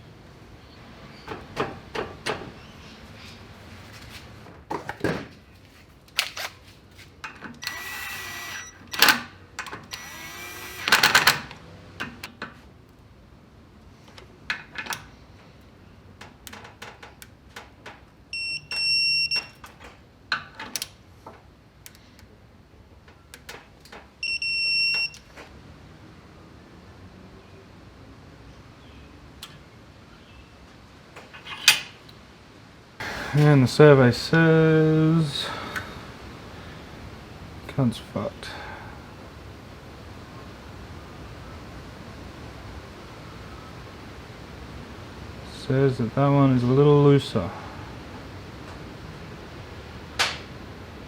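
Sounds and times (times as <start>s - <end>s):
high electronic beeps: 7.6s - 8.8s
loud bursts of rushing noise: 33.0s - 34.2s.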